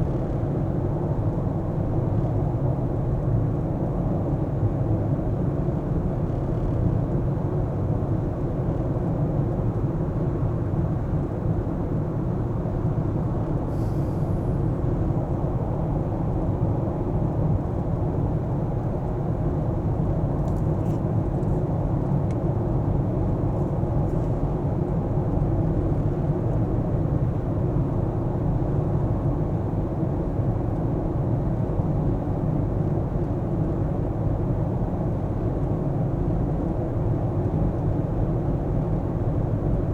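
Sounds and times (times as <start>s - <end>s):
road and engine drone: 13.0s - 18.4s.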